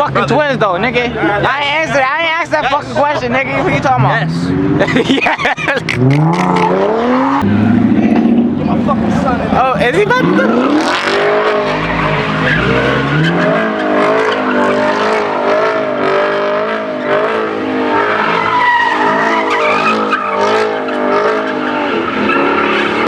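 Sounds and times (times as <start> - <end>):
car engine at high revs: 3.3 - 23.0
tyres squealing: 10.0 - 23.0.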